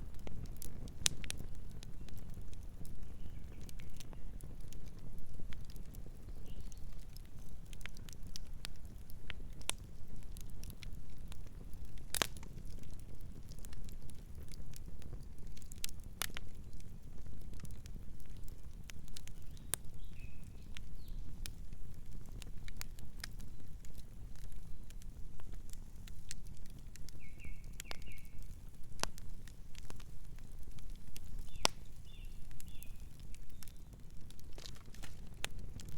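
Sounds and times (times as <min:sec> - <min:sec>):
campfire crackling: 0:00.0 - 0:35.9
low rumble of flames: 0:00.0 - 0:35.9
wood snapping: 0:12.1 - 0:12.8, 0:30.8 - 0:31.9, 0:34.3 - 0:35.9.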